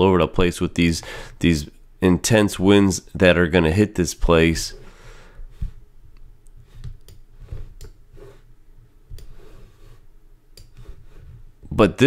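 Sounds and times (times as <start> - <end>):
low steady hum: 0.0 - 12.0
computer mouse clicking: 6.8 - 7.2, 9.1 - 9.4, 10.5 - 10.8.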